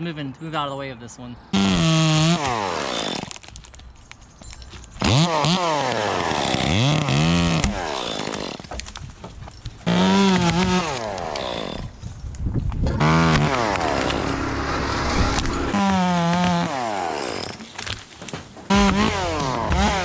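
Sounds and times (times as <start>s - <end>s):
chainsaw revving: 1.6s - 3.4s, 5.0s - 8.8s, 9.8s - 12.0s, 12.9s - 18.0s, 18.7s - 20.0s.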